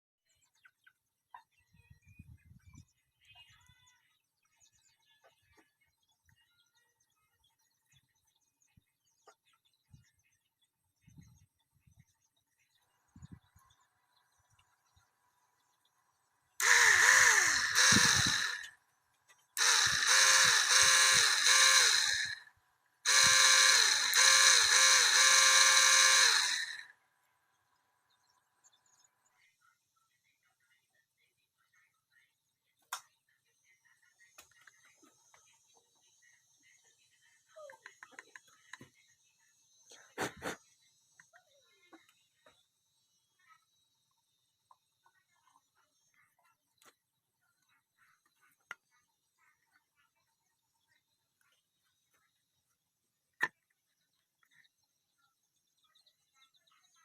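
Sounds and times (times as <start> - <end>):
faint birds chirping: 0.2 - 57.0
small electric motor whining: 16.6 - 18.8, 19.6 - 22.5, 23.1 - 27.0.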